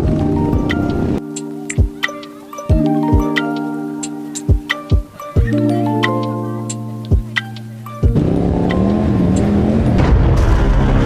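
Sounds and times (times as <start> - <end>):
faint background music: 0.0 - 11.0
wind and road noise: 8.0 - 11.0.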